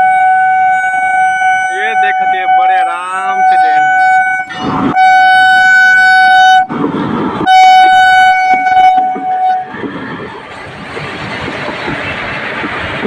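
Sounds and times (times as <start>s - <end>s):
train horn blasts: 0.0s - 6.7s, 7.4s - 9.8s
train rolling rumble: 0.0s - 13.0s.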